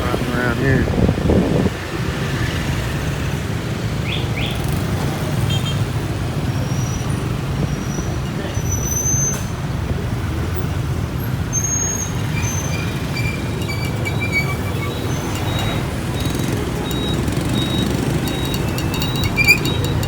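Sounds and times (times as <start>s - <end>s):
motorbike engine rumble: 9.4s - 20.0s.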